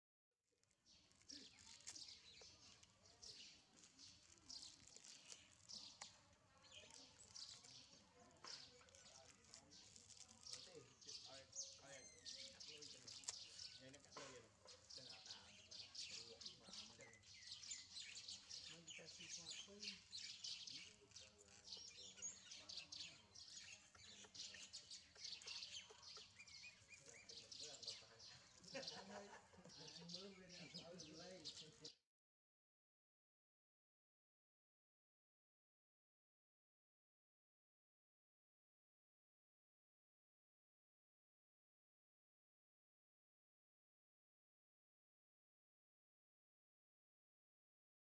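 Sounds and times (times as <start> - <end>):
small birds chirping: 0.7 - 32.0.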